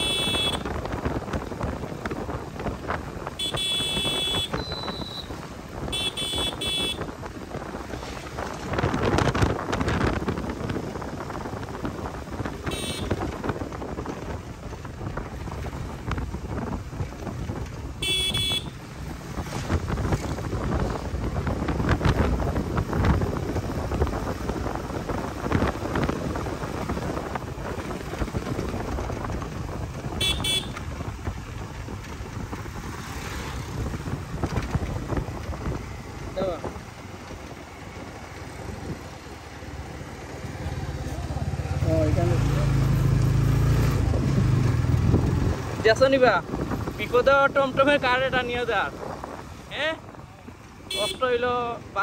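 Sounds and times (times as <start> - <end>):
high-pitched vehicle horn honking: 0.0 - 0.7, 3.4 - 5.3, 5.9 - 7.1, 12.7 - 13.2, 18.0 - 18.8, 30.2 - 30.8, 50.9 - 51.4
wind on microphone: 0.0 - 50.7
motorcycle traffic noise: 0.0 - 52.0.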